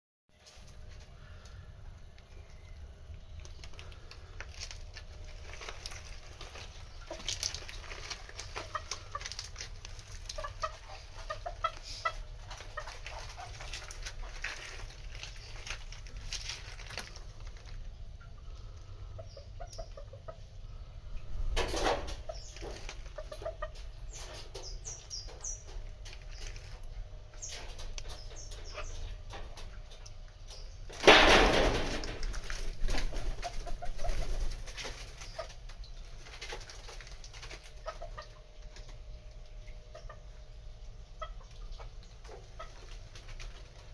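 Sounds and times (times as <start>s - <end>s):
chickens clucking: 3.4s - 43.9s
rustle of wings: 30.9s - 38.0s.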